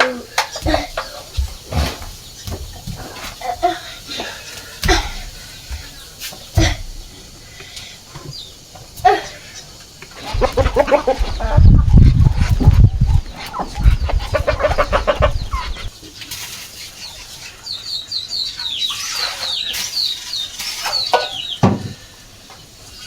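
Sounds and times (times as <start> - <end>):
wings flapping: 0.0 - 7.2, 8.9 - 16.9
chicken clucking and squawking: 0.0 - 7.4, 8.3 - 21.6
high falling peeps: 8.2 - 15.9.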